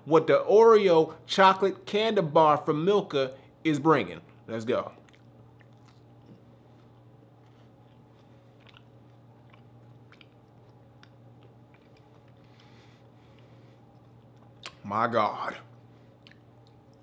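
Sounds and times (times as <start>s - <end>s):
faint chewing: 4.2s - 14.8s, 15.7s - 17.0s.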